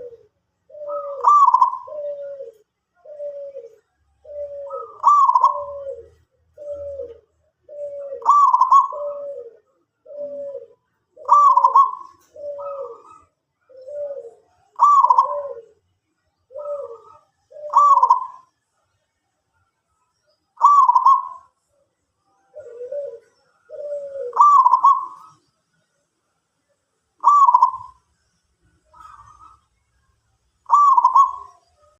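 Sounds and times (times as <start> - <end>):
dove cooing: 0.0 - 18.6, 20.6 - 25.5, 27.2 - 28.1, 28.8 - 29.8, 30.6 - 31.9.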